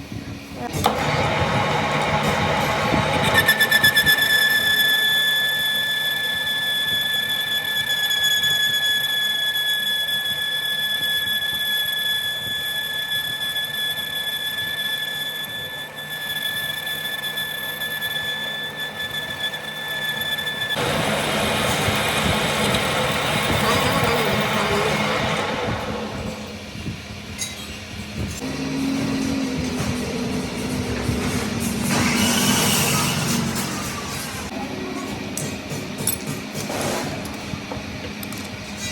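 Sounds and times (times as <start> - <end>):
cutting tool squealing against metal: 2.2 - 20.8.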